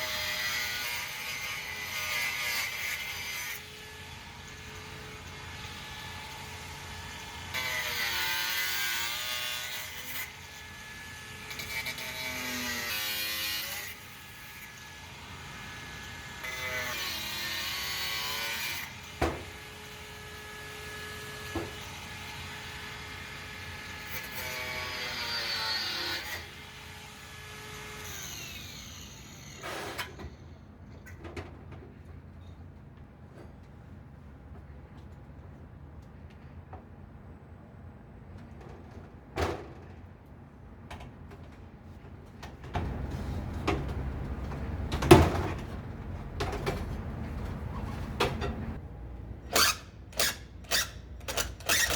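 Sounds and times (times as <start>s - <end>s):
saw cutting plastic pipe: 49.5s - 51.9s.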